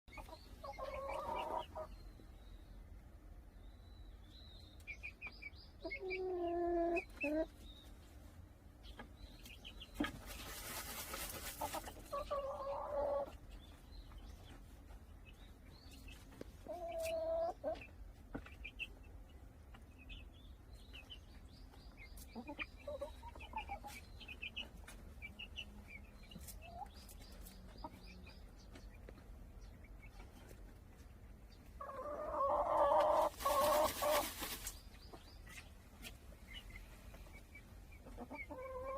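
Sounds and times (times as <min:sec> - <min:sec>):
chickens clucking: 0:00.1 - 0:03.5, 0:04.2 - 0:38.9
rustling of scattered dirt: 0:09.0 - 0:12.3, 0:33.0 - 0:36.3.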